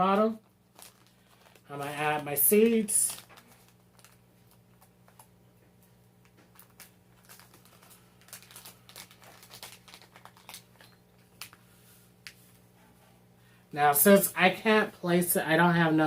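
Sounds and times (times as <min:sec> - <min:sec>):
seed packet crinkling: 0:00.4 - 0:05.4, 0:06.1 - 0:12.6.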